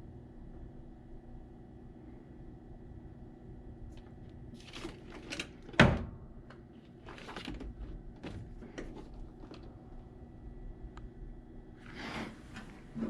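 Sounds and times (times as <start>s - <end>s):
handling knocks and rustles: 7.0s - 9.8s.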